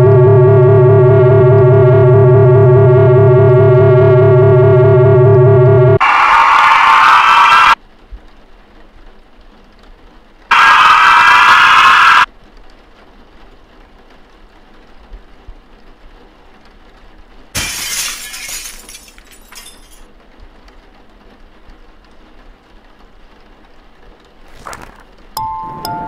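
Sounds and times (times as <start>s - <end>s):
glass shattering: 17.6s - 20.1s.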